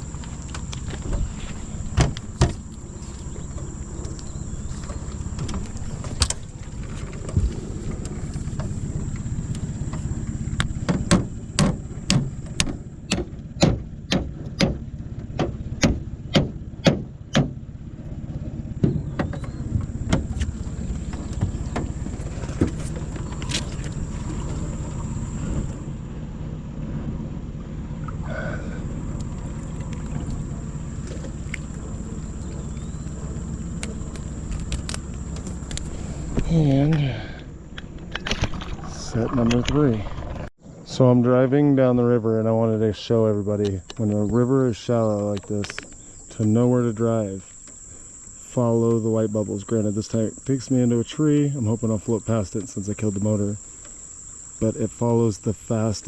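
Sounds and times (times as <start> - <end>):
outboard motor running: 0.0 - 56.0
sharp knocks: 10.6 - 17.6.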